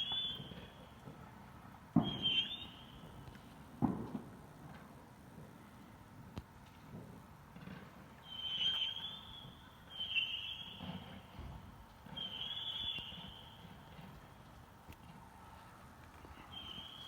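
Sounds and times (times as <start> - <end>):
distant whistling fireworks: 0.0 - 4.7, 8.2 - 14.5, 16.3 - 17.0.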